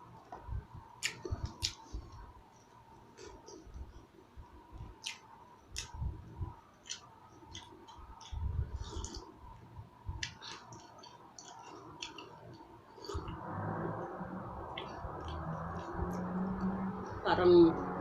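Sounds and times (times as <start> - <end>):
person chewing: 1.0 - 2.2, 5.0 - 6.1, 6.8 - 9.4, 10.2 - 13.4.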